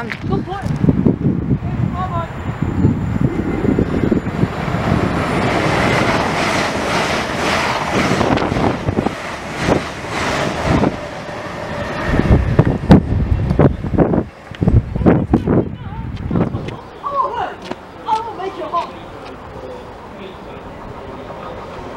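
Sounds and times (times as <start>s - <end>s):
train passing at speed: 0.0s - 21.9s.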